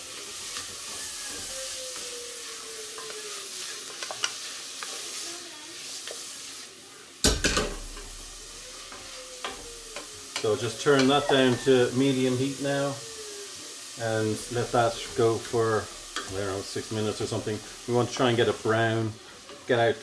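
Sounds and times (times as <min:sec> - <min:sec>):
onions sizzling in a frying pan: 0:00.0 - 0:20.0
utensil clicking against pan: 0:07.2 - 0:11.7, 0:14.4 - 0:18.2.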